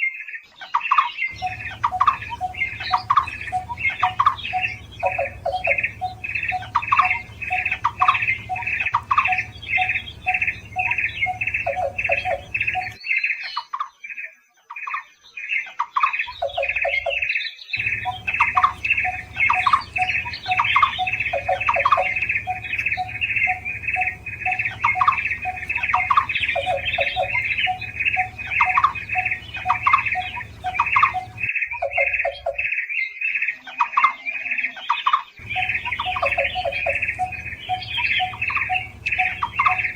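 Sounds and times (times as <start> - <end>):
barbets calling: 1.3 - 13.0, 16.2 - 32.8, 34.9 - 39.9
steady low hum: 1.3 - 13.0, 17.8 - 32.6, 35.4 - 39.9
lower run of short notes: 1.4 - 13.0, 17.8 - 31.5, 35.4 - 39.9.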